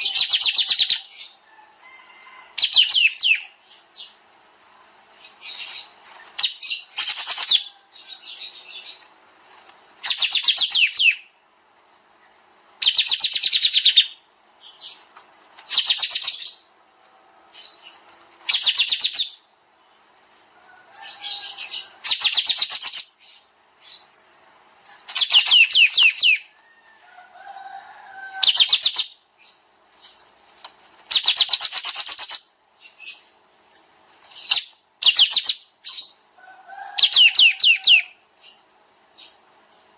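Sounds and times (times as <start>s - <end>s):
songbird trilling: 0.0s - 1.4s, 2.6s - 4.2s, 5.2s - 9.0s, 10.0s - 11.3s, 12.7s - 15.1s, 15.7s - 16.7s, 17.5s - 19.5s, 21.0s - 26.5s, 28.3s - 30.4s, 31.1s - 39.9s.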